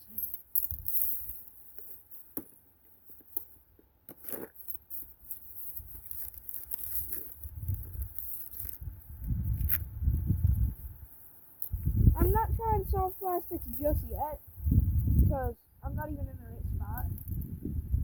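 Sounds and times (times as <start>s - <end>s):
scraping rustle: 4.2s - 15.4s.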